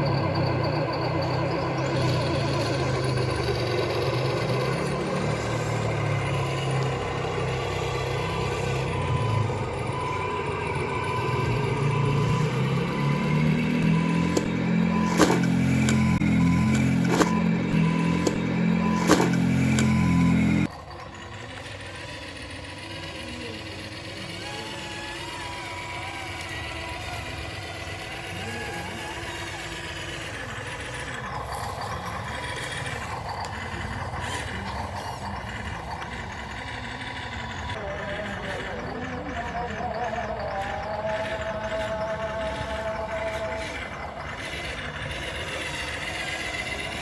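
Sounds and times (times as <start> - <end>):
truck engine running and revving: 0.0 - 47.0
sharp clicks: 11.7 - 21.7.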